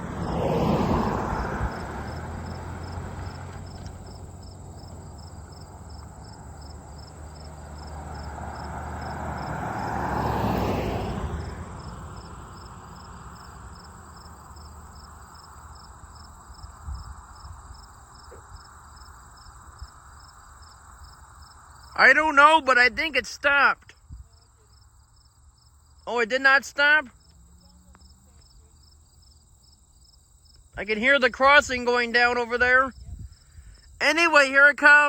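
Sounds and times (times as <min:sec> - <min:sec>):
vehicle passing: 0:00.0 - 0:20.1, 0:24.4 - 0:29.5
crickets chirping: 0:00.0 - 0:35.0.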